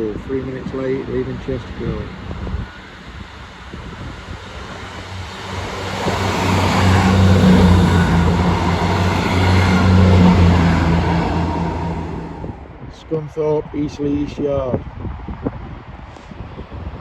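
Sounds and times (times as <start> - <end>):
diesel train engine pulling away: 0.0 - 12.8.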